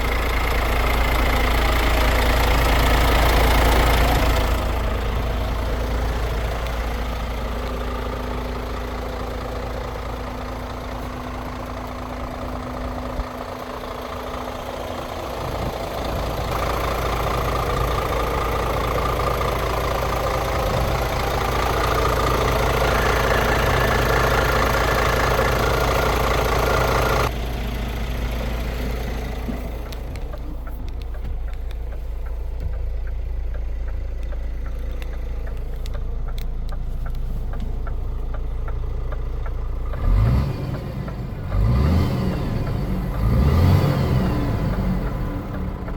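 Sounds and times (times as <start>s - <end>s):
diesel truck engine idling: 0.0s - 45.9s.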